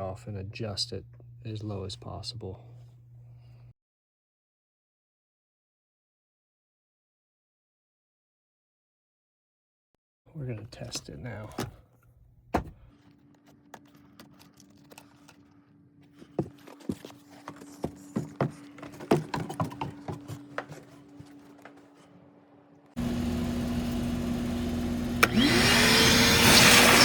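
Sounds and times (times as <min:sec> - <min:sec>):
faint steady hum: 0:00.0 - 0:03.7
hands clicking and knocking equipment: 0:16.2 - 0:21.8
motor whine spinning up: 0:23.0 - 0:27.0.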